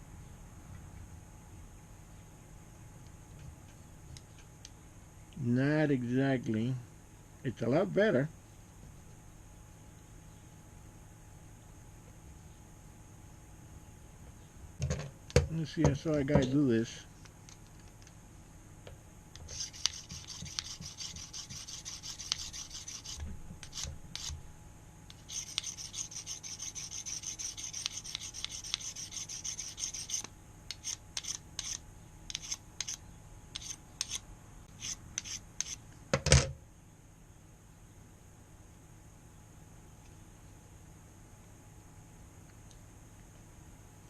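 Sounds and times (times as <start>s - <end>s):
knife scraping against sharpener: 19.4s - 24.4s, 25.1s - 33.0s, 33.6s - 34.2s, 34.8s - 35.8s.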